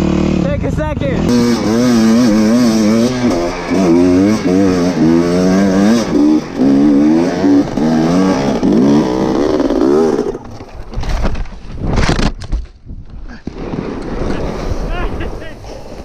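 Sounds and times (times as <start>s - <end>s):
motorcycle engine revving: 0.0s - 10.7s
wind noise: 10.6s - 16.0s.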